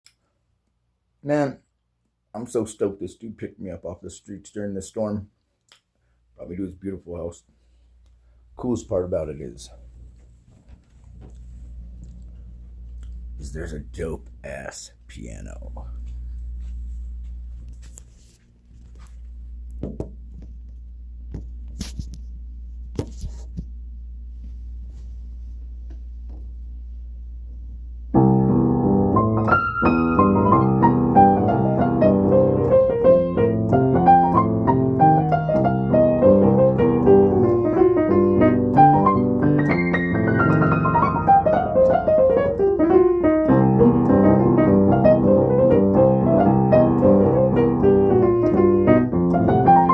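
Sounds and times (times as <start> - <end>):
low steady hum: 6.0 - 34.0
piano playing: 28.2 - 49.9.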